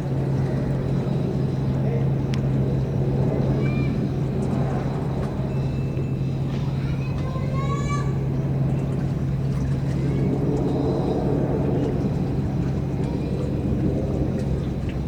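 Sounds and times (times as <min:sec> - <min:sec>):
ferry engines droning: 0:00.0 - 0:15.0
faint voices: 0:09.7 - 0:14.5.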